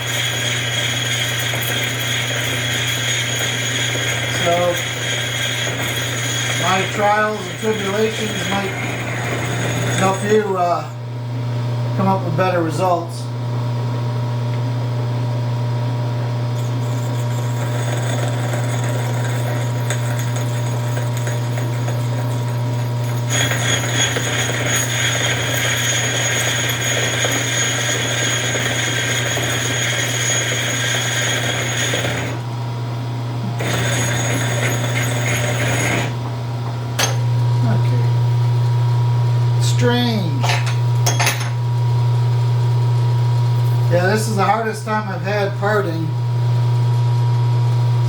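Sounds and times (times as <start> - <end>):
harsh high cutting noise: 0.0 - 10.7, 16.6 - 32.5
lathe humming: 0.0 - 11.2, 16.3 - 46.5.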